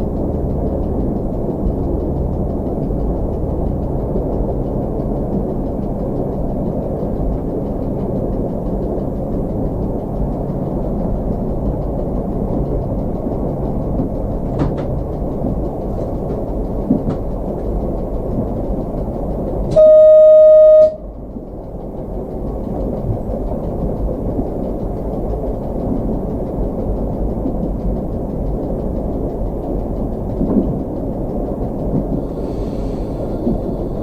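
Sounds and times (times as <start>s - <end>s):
diesel railcar rumbling: 0.0s - 34.0s
faint clicks from track: 0.0s - 34.0s
train horn: 19.7s - 21.1s.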